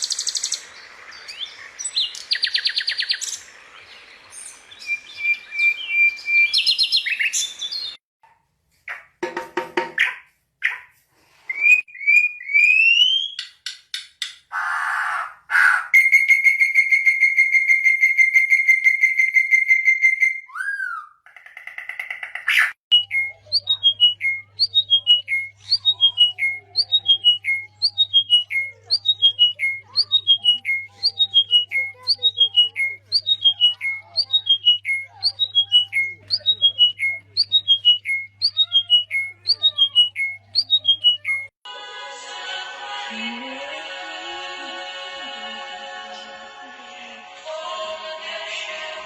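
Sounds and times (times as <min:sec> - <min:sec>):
bird calling with harsh rasps: 0:14.5 - 0:41.5
bird rising and falling whistle: 0:16.0 - 0:21.1.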